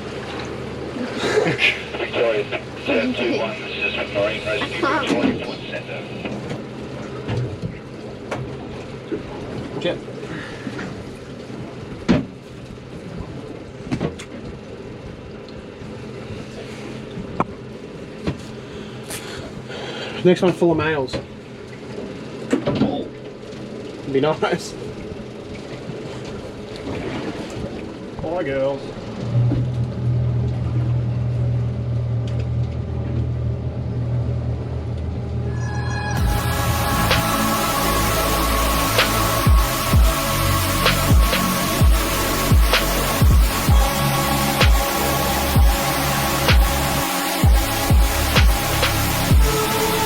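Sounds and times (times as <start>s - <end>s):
boat motor running: 0.0s - 50.0s
sharp knocks on boat: 12.0s - 12.4s, 13.9s - 14.4s
music: 35.4s - 50.0s
wind and water rushing: 36.2s - 50.0s.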